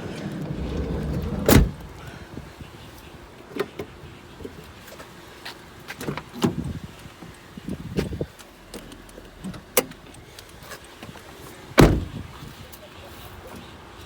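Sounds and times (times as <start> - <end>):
heavy thump: 0.4 - 2.0, 11.8 - 12.2.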